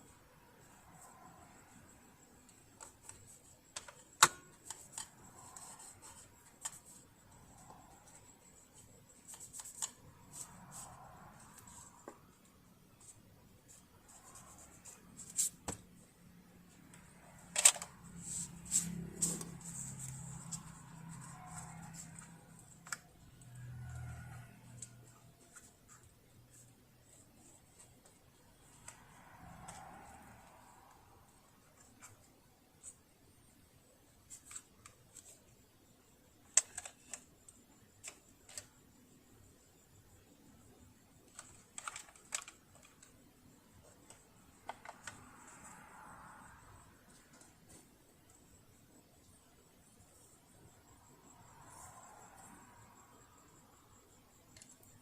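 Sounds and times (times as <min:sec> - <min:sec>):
small hard parts clicking: 0:41.3 - 0:43.2.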